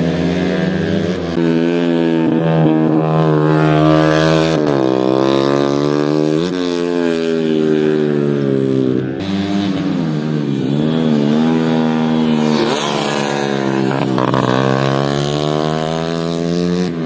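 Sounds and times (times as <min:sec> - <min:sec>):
motorcycle engine at high revs: 0:00.0 - 0:17.0.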